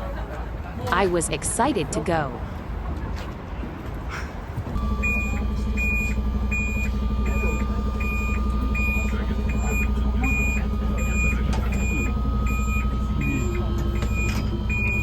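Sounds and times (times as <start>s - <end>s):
diesel engine running: 0.9s - 2.8s, 4.4s - 15.0s
reversing alarm beeping: 4.8s - 15.0s.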